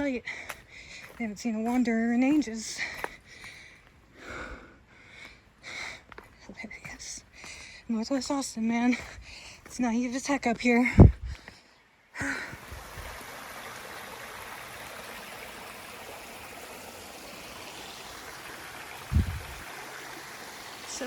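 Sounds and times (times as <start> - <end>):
creek flowing: 12.2 - 21.0.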